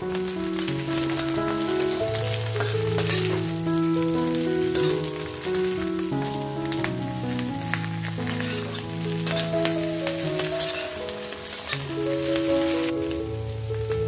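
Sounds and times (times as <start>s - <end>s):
background music: 0.0s - 14.0s
vegetables sizzling in oil: 0.0s - 14.0s
spatula stirring in pan: 0.5s - 3.5s, 8.1s - 12.8s.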